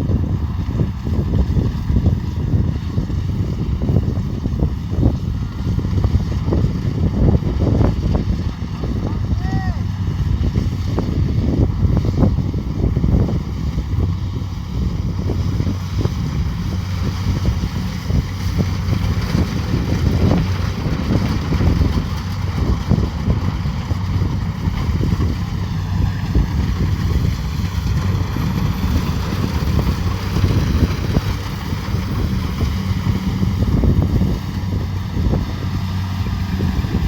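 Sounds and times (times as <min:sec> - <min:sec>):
diesel engine running: 0:00.0 - 0:37.0
machinery rattling: 0:09.9 - 0:37.0.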